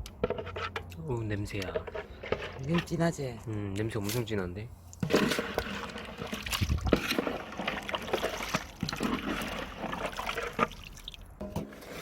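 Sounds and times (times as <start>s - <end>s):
ladle skimming: 0.2s - 3.2s, 4.9s - 12.0s
broth sloshing in a pot: 1.5s - 3.2s, 5.0s - 12.0s.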